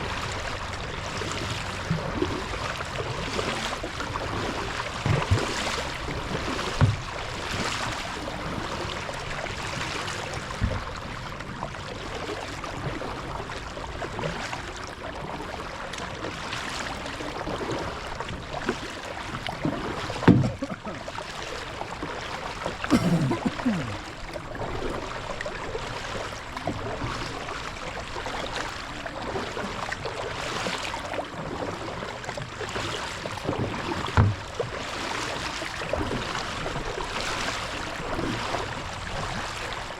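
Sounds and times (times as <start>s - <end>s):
paddle splashing in water: 0.0s - 39.9s
dull knocks against kayak: 4.8s - 7.9s, 10.6s - 11.0s, 20.0s - 21.0s, 33.4s - 34.7s.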